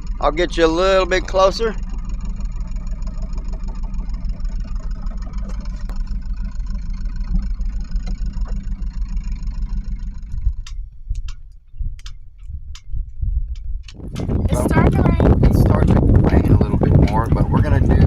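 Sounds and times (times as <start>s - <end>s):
diesel engine rumbling: 0.0s - 18.0s.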